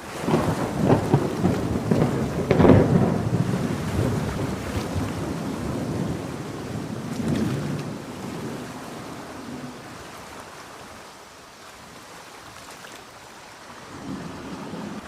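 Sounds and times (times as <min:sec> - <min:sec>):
thunder rumbling: 0:00.0 - 0:10.0, 0:13.9 - 0:15.0
ocean surf: 0:00.0 - 0:15.0
rain: 0:00.0 - 0:15.0.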